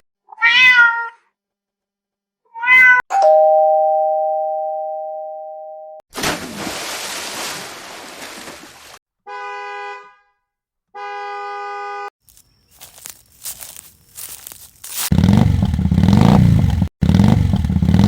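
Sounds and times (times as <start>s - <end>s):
car horn honking: 9.2s - 12.1s.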